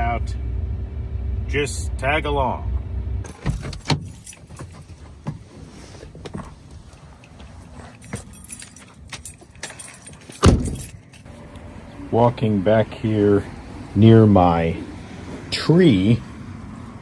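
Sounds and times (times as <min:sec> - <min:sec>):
jingling clicks of handling: 0:03.3 - 0:05.5, 0:06.1 - 0:11.4.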